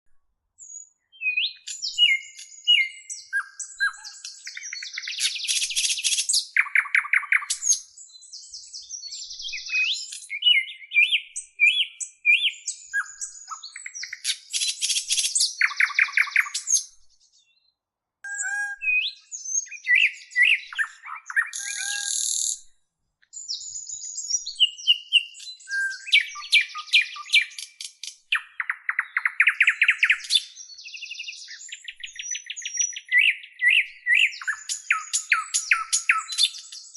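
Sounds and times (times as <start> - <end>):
bird song: 0.1 - 36.9.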